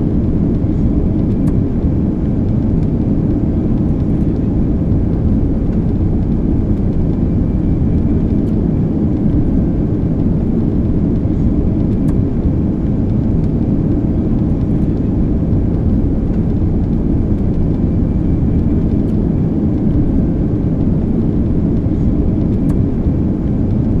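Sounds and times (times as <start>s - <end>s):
jet engine rumble in cabin: 0.0s - 24.0s.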